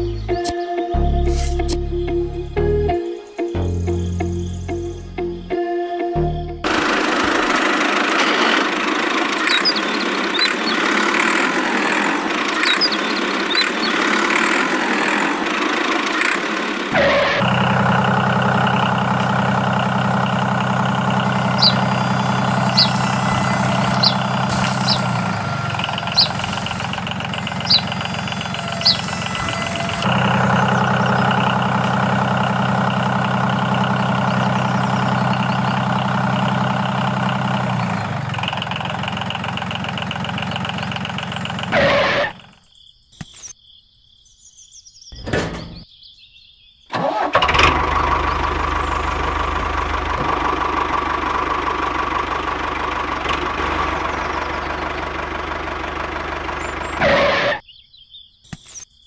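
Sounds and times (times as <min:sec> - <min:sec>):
diesel tractor engine idling: 0:06.6 - 0:42.5, 0:45.2 - 0:45.8, 0:46.9 - 0:57.6.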